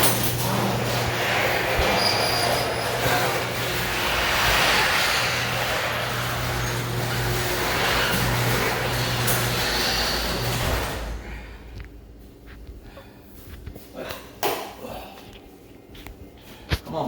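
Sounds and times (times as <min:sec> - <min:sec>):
garage door rumble: 0:00.0 - 0:12.2
low motor hum: 0:00.0 - 0:13.8
thin metallic squeal: 0:01.8 - 0:03.5.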